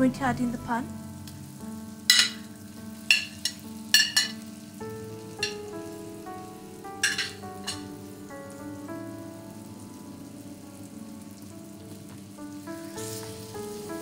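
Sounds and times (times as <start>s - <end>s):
chicken sizzling in pan: 0.6s - 14.0s
spoon clinking on plate: 7.0s - 7.9s.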